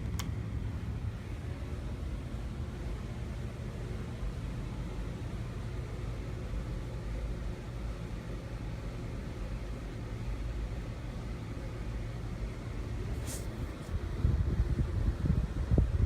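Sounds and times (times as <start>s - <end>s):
ceiling fan air rush: 0.0s - 16.0s
faint motor hum: 0.0s - 16.0s.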